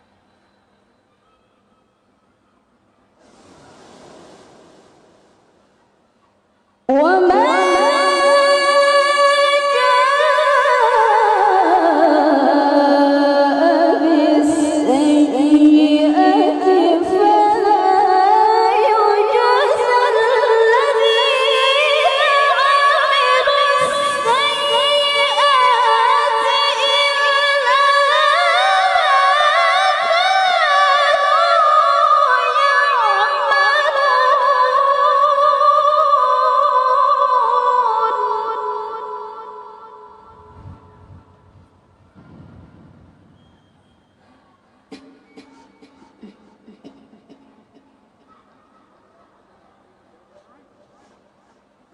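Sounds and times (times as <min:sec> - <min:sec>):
woman reciting melodically: 0:06.9 - 0:41.0.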